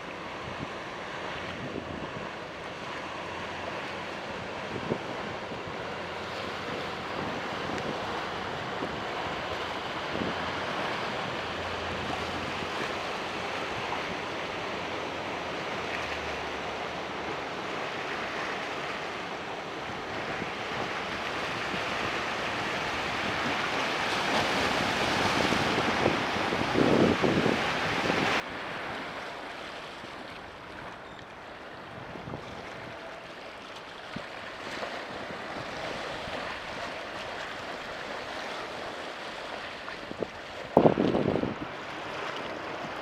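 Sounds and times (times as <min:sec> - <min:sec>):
wind buffeting microphone: 0:19.8 - 0:28.7, 0:39.8 - 0:41.9.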